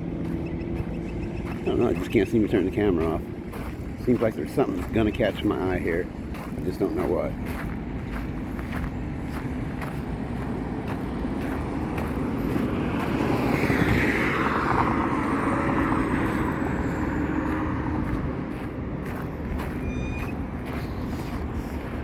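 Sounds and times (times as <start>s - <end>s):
traffic rumble: 0.0s - 22.0s
vehicle passing by: 0.0s - 22.0s.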